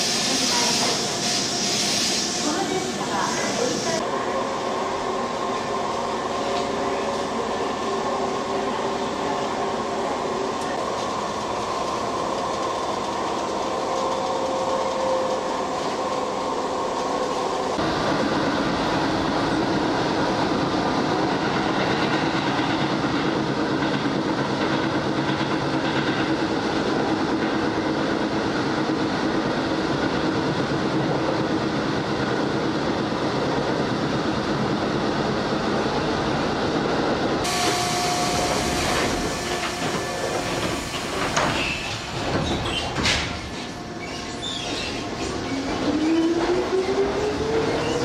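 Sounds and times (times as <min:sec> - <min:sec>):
train hum with held tones: 0:00.0 - 0:48.0
electric train running noise: 0:37.4 - 0:42.4.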